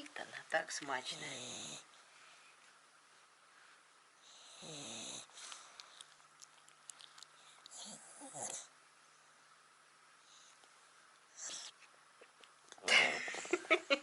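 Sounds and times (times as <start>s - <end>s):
dog snoring: 1.0s - 1.9s, 4.2s - 5.4s, 7.7s - 8.7s, 11.3s - 11.7s.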